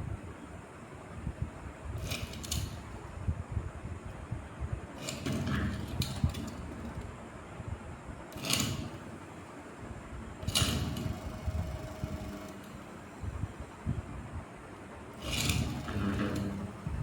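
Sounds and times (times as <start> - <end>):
mechanical clicking and rattling: 2.0 - 3.2, 5.0 - 7.3, 8.3 - 9.5, 10.4 - 13.6, 15.2 - 17.0.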